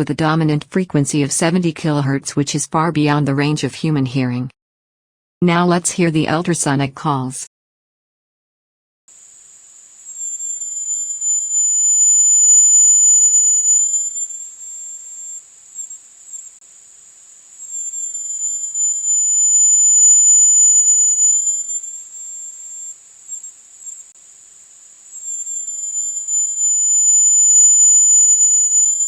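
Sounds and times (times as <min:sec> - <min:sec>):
very high-pitched whine: 0:09.1 - 0:29.0.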